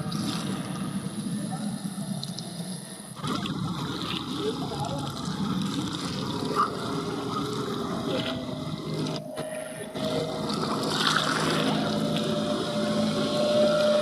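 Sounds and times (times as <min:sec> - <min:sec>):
boat engine droning: 0:00.0 - 0:14.0
steady higher tone: 0:06.6 - 0:14.0.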